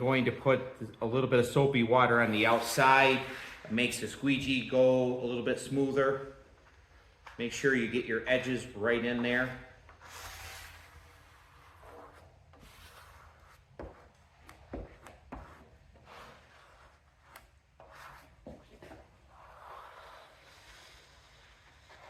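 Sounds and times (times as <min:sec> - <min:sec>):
squeegee scraping wet decal: 0:02.0 - 0:04.2, 0:09.4 - 0:22.0.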